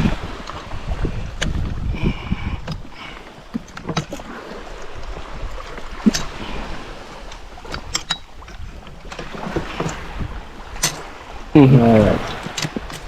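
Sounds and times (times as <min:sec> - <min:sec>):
wind and water rumble: 0:00.0 - 0:13.0
gear knocking and clicking: 0:07.3 - 0:10.1, 0:10.7 - 0:11.1.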